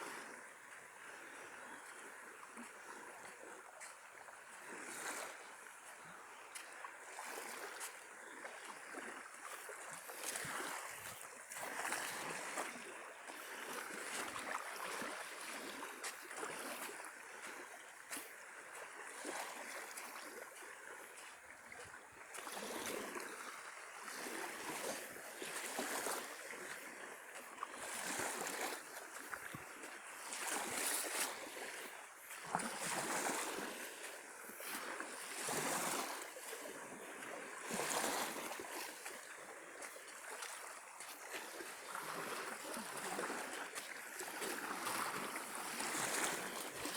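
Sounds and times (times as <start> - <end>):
small waves washing onto beach: 0.0 - 46.9.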